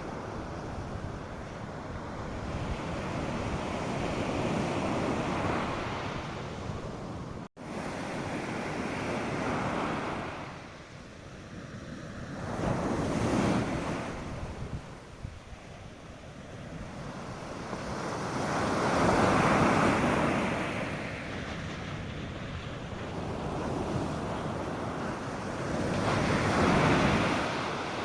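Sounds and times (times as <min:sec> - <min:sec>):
wind on microphone: 0:00.0 - 0:28.0
surf breaking on beach: 0:11.6 - 0:28.0.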